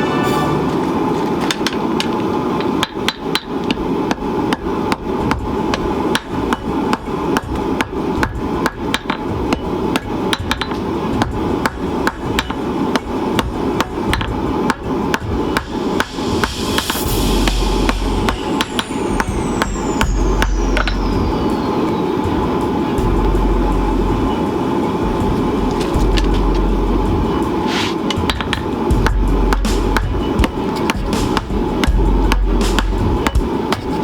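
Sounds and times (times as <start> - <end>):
hammer striking steel on anvil: 0.0 - 34.0.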